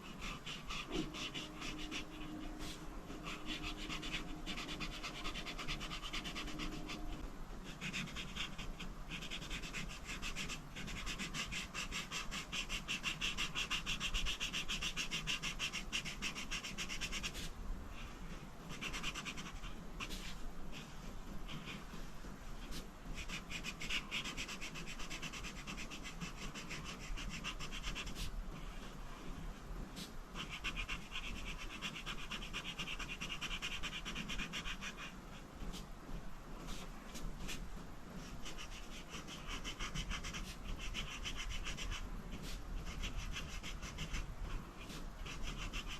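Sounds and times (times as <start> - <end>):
coloring tool scratching paper: 0.0 - 35.9, 36.6 - 45.9.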